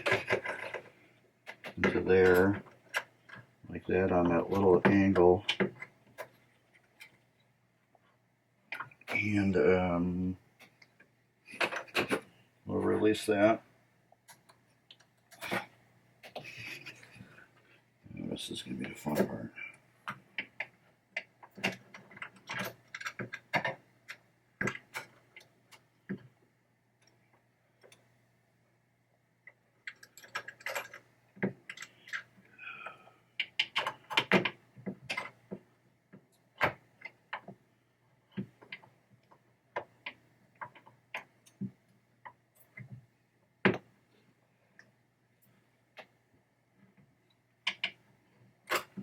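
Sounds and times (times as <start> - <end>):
small metal parts clicking: 21.2 - 23.8, 29.8 - 31.0.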